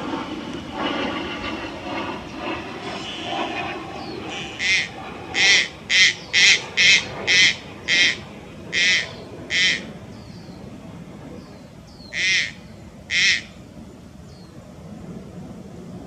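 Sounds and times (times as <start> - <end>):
heron harsh quavering calls: 4.2 - 10.0, 12.1 - 13.6.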